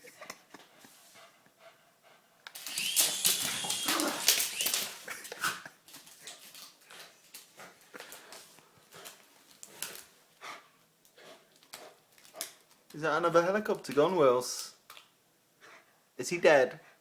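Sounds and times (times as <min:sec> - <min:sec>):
dog whimpering: 0:03.0 - 0:04.9.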